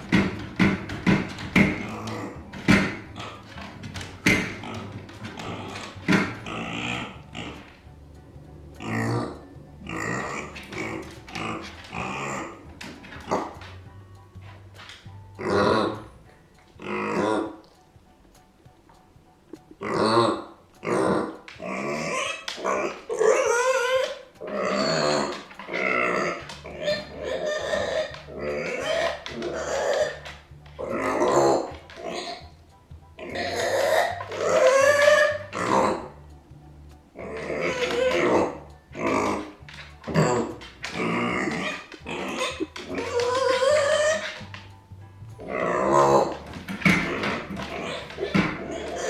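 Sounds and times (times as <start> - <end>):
sharp loud knocks: 0.0 - 5.4
pig grunting and squealing: 0.0 - 17.8, 19.5 - 49.0.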